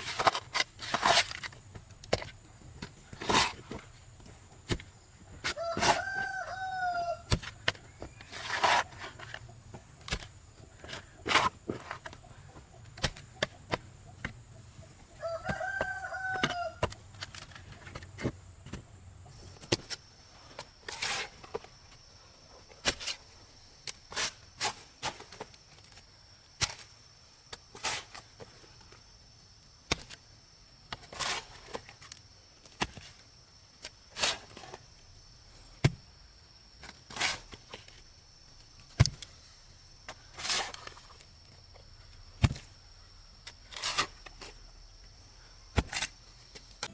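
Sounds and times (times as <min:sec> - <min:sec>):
rooster crowing: 0:05.5 - 0:07.3, 0:15.2 - 0:16.9.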